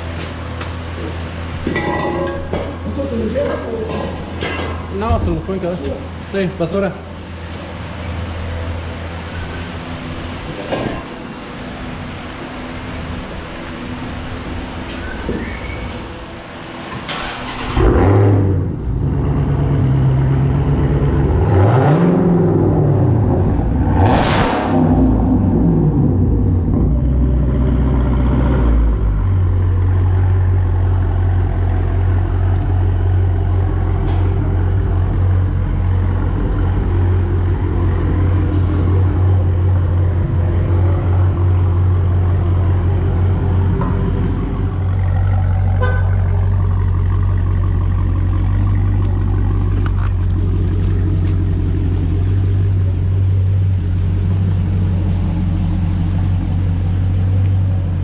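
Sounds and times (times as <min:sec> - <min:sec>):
car engine idling loudly: 0:24.6 - 0:58.0.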